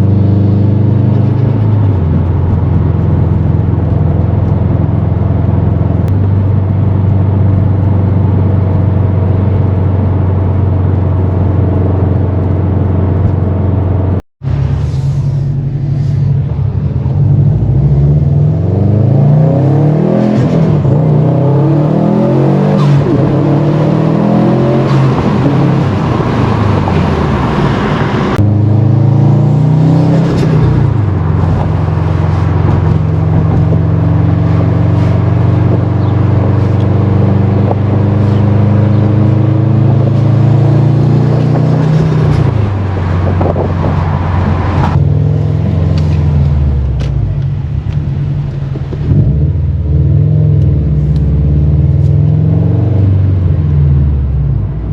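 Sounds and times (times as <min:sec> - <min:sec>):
turbocharged car engine accelerating: 0:00.0 - 0:54.9.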